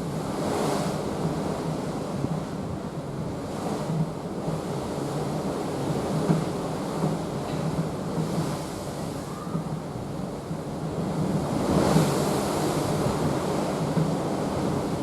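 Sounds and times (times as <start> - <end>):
water rushing along ship hull: 0.0 - 15.0
wind on microphone: 7.8 - 15.0.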